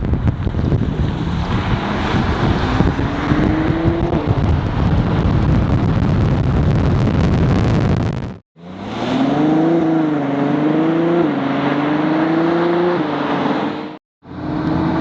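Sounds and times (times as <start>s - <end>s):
wind buffeting microphone: 0.0s - 8.4s
car driving at speed: 0.0s - 15.0s
road rumble: 0.0s - 15.0s.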